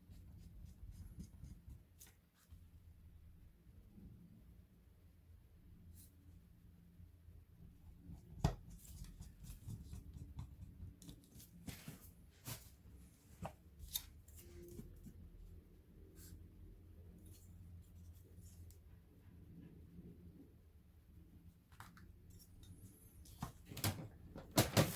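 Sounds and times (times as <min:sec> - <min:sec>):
clicks and scrapes on laptop: 0:08.0 - 0:15.2.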